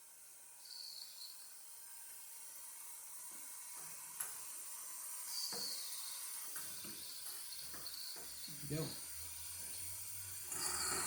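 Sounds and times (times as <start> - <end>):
steam engine hissing: 10.4 - 11.0.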